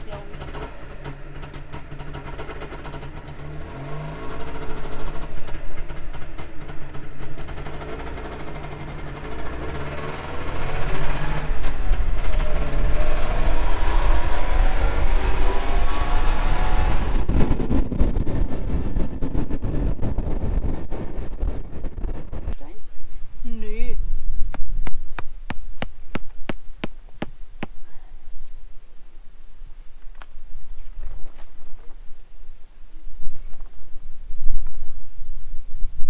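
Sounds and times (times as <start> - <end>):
two-stroke car engine running: 0.0 - 22.4.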